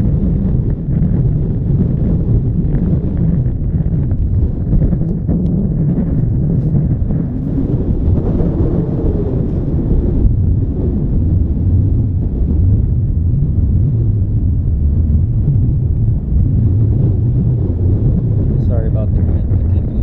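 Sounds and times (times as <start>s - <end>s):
wind buffeting microphone: 0.0s - 20.0s
farm machinery rumbling: 4.1s - 20.0s.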